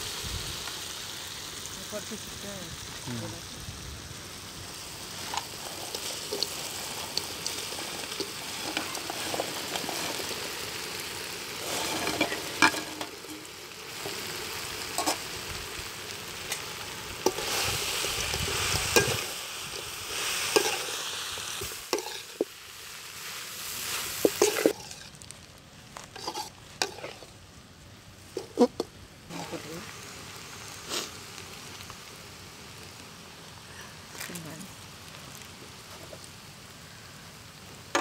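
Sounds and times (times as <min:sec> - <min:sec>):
food sizzling in a pan: 0:00.0 - 0:27.6, 0:28.2 - 0:38.0
spoon scraping and knocking pan: 0:20.6 - 0:20.9, 0:22.0 - 0:22.5, 0:26.2 - 0:27.3.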